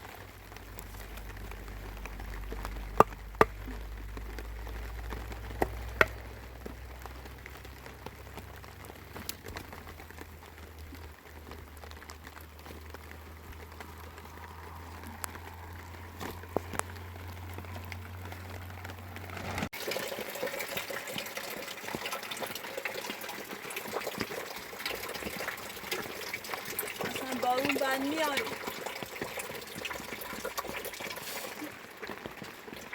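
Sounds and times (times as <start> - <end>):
rain-like water noise: 0.0 - 32.9
water drips and taps: 19.7 - 32.9.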